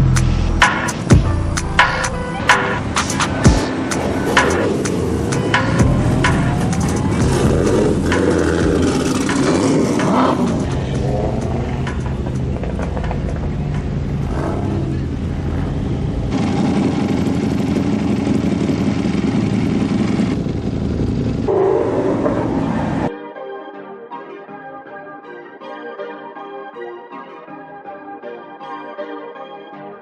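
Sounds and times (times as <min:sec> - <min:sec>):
car engines running: 0:00.0 - 0:23.1.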